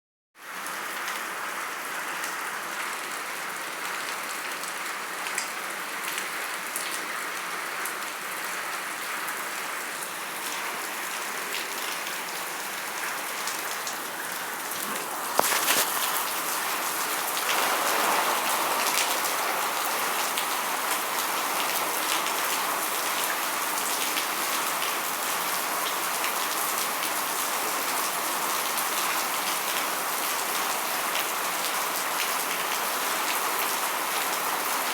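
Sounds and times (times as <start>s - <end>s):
rain falling: 0.5s - 34.9s.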